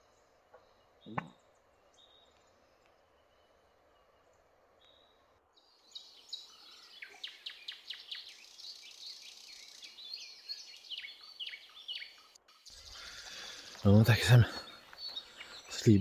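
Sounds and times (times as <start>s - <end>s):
birds chirping and whistling: 4.8s - 16.0s.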